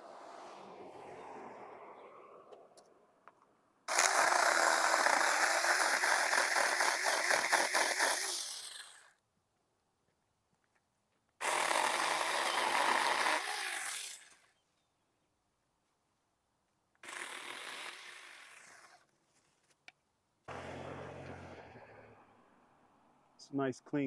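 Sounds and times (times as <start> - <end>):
electric chainsaw cutting: 3.9 - 9.2, 11.4 - 14.5, 17.0 - 19.1, 20.5 - 21.8.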